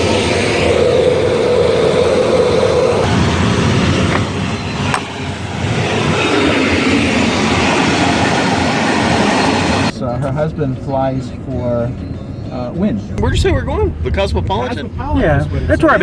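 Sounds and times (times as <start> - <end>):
steady hum: 0.0 - 9.9.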